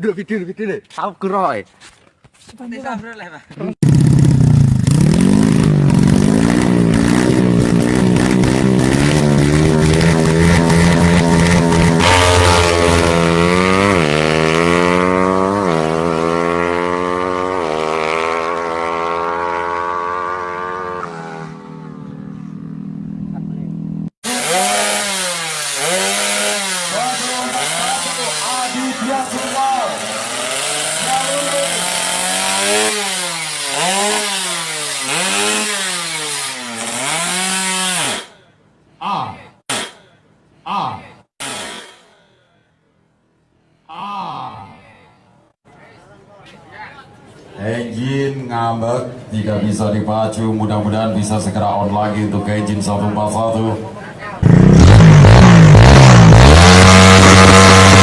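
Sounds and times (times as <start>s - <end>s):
motorcycle engine revving: 3.8s - 38.3s, 54.4s - 58.0s.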